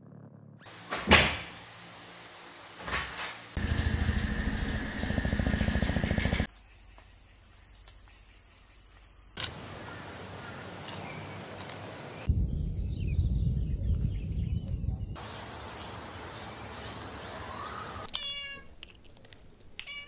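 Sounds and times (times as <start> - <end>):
loud pulsing motor: 3.6 - 6.5.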